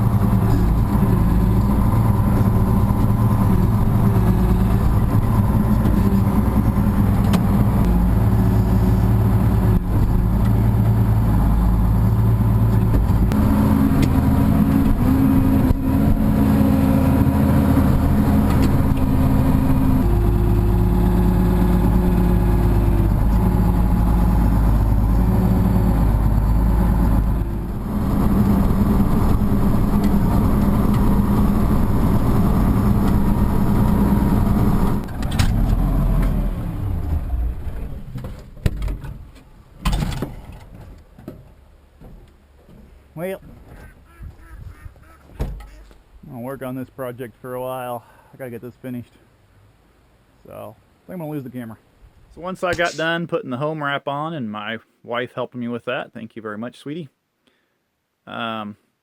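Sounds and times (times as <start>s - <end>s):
engine running: 0.0s - 46.0s.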